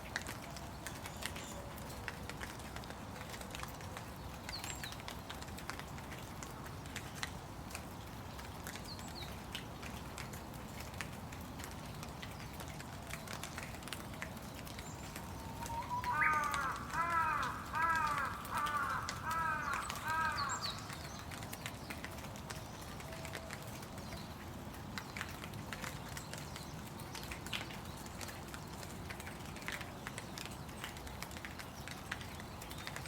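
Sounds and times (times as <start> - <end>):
steady rain: 0.0 - 33.0
crow cawing: 15.7 - 20.9.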